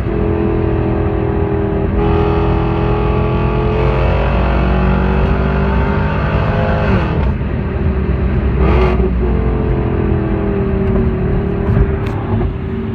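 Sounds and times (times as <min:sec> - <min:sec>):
car engine idling: 0:07.3 - 0:12.9.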